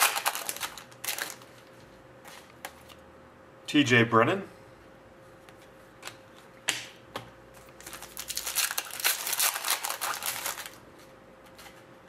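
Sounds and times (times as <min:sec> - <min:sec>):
foil wrapper crinkling: 0:00.0 - 0:01.8, 0:07.7 - 0:10.8.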